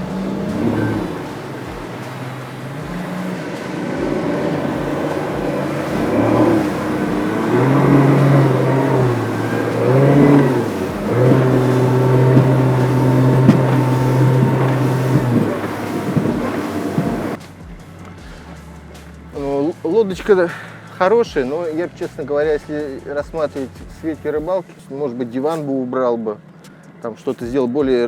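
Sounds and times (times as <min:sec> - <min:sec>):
outboard motor driving a boat: 0:00.0 - 0:17.4.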